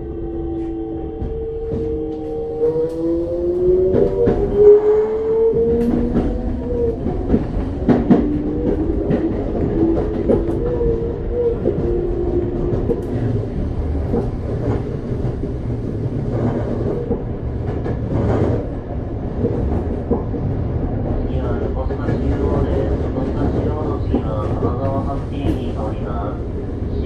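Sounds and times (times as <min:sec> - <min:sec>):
subway inverter whine: 0:00.0 - 0:27.0
wheels rumbling: 0:00.2 - 0:21.3
rail-joint clicks: 0:05.5 - 0:10.8, 0:11.6 - 0:18.7.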